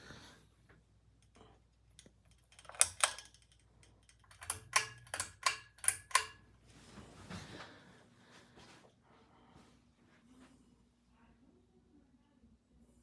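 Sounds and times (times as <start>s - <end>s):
sharp clicks: 2.0s - 6.4s
faint low hum: 5.8s - 13.0s.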